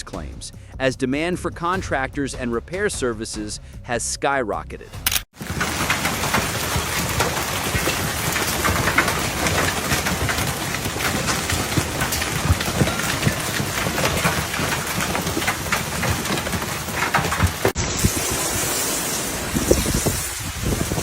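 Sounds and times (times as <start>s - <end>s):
dense patter of hail: 5.3s - 21.0s
hailstones striking hard surfaces: 5.3s - 21.0s.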